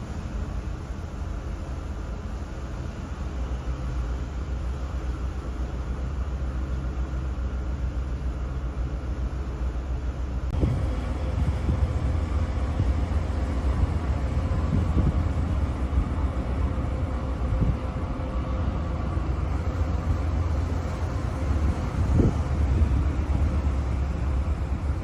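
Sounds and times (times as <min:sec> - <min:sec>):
ship engine rumble: 0:00.0 - 0:25.0
wind buffeting microphone: 0:10.5 - 0:25.0.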